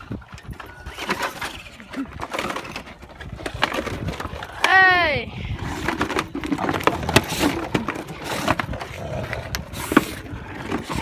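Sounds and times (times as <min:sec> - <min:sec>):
plastic toy truck clattering and cracking: 0:00.0 - 0:04.9, 0:05.5 - 0:11.0.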